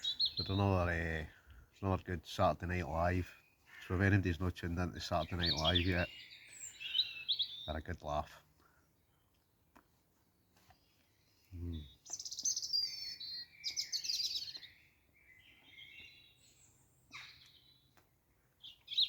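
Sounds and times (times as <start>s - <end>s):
songbirds singing: 0.0s - 19.0s
man humming: 11.6s - 11.9s.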